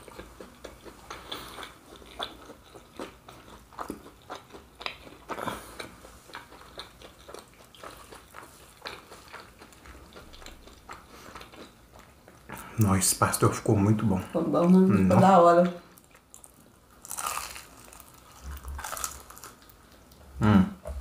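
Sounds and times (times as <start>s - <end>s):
wet chewing: 0.0s - 12.8s, 14.6s - 20.2s
crunching fried pastry: 16.0s - 20.1s.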